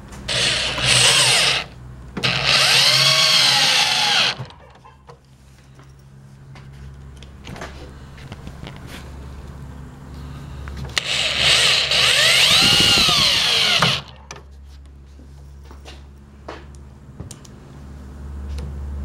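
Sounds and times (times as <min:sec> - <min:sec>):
power drill driving screw into wood: 0:00.3 - 0:04.5, 0:11.0 - 0:14.1.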